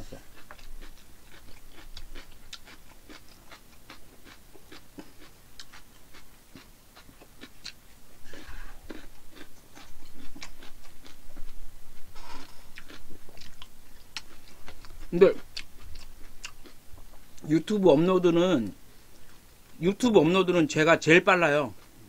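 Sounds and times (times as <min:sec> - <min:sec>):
noisy chewing bursts: 0:00.0 - 0:19.9, 0:21.4 - 0:22.0
wet chewing mouth clicks: 0:00.3 - 0:17.5.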